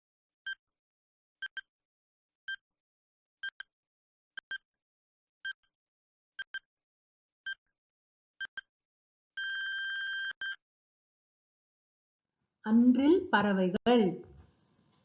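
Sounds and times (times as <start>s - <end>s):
electronic timer ticks: 1.4s - 1.7s, 3.4s - 3.7s, 4.4s - 4.6s, 6.4s - 6.7s, 8.4s - 8.7s.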